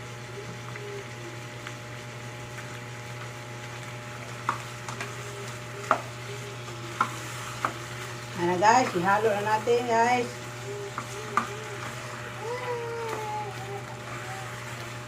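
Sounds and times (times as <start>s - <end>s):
chicken sizzling in a frying pan: 0.0s - 15.0s.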